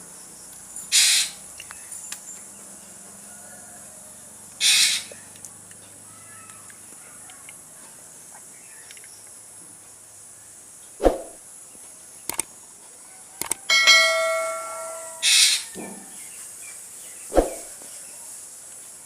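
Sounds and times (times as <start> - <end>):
bell-like ringing tone: 13.7 - 15.5.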